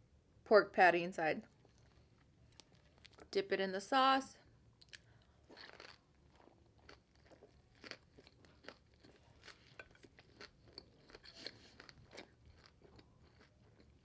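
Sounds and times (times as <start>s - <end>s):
chewing crunches: 4.8s - 14.0s.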